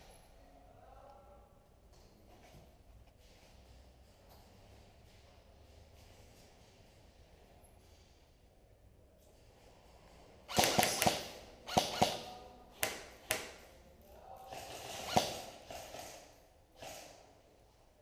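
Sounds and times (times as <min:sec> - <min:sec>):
airsoft gun shots: 0:10.5 - 0:13.6, 0:14.6 - 0:16.2.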